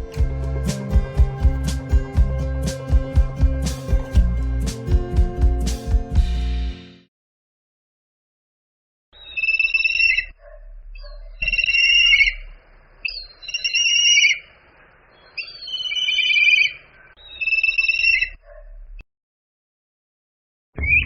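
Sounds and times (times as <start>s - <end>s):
bird of prey calling: 11.4s - 18.4s.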